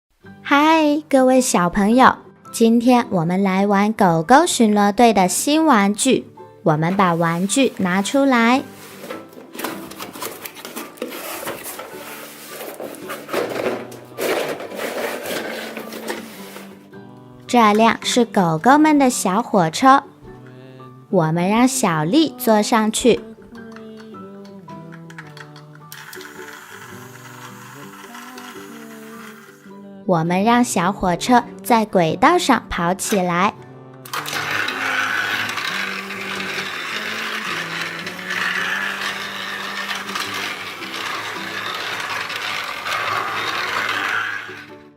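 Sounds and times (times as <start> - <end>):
plastic toy pieces clattering: 9.0 - 16.6, 34.1 - 44.7.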